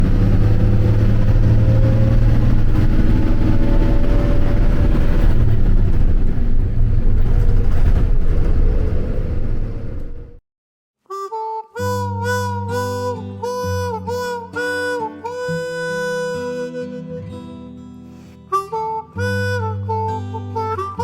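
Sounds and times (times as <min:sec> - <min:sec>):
vehicle engine rumbling: 0:00.0 - 0:10.4.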